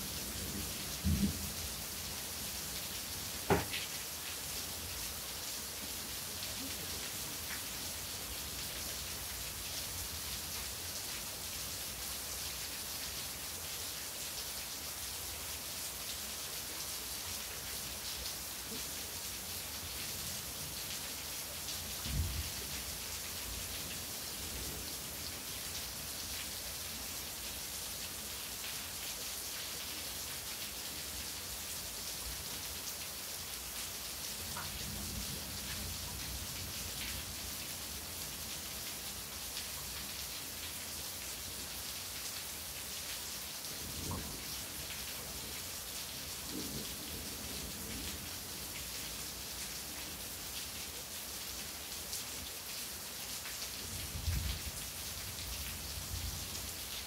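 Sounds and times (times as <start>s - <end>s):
steady rain: 0.0s - 57.0s
low thump: 3.5s - 3.8s.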